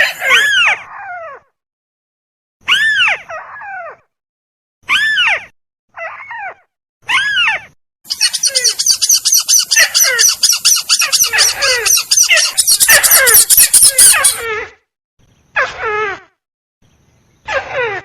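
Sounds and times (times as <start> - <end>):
bird calls: 8.1 - 14.4
fast high repeated bird notes: 8.1 - 14.4.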